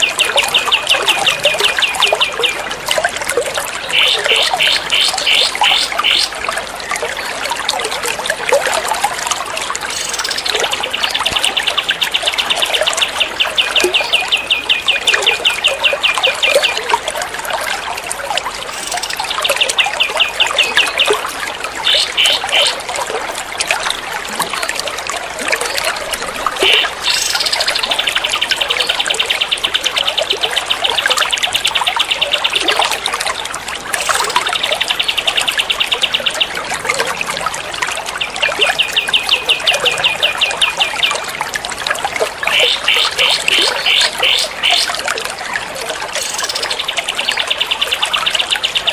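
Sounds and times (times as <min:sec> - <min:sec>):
running water trickle: 0:00.0 - 0:48.9.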